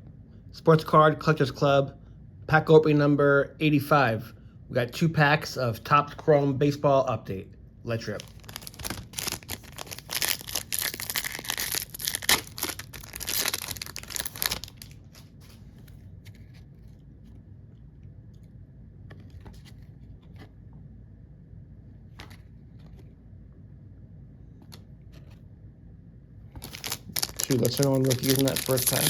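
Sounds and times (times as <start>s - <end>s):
foil wrapper tearing and crinkling: 8.1s - 15.2s, 26.6s - 29.0s.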